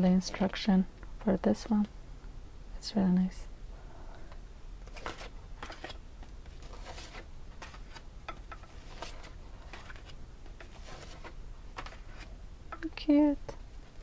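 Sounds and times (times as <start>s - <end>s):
paper rustling and scraping: 4.8s - 12.4s.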